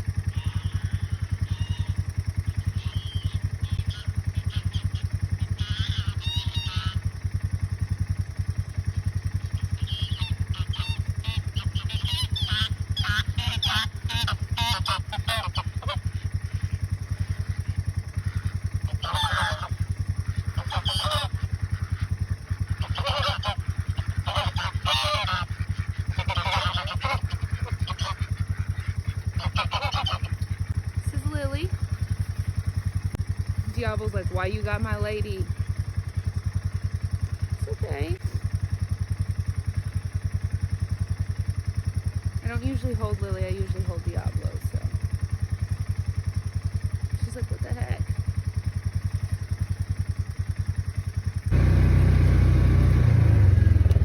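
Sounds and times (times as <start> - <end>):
utility vehicle engine running: 0.0 - 54.0
geese honking: 0.1 - 7.6, 9.0 - 33.0.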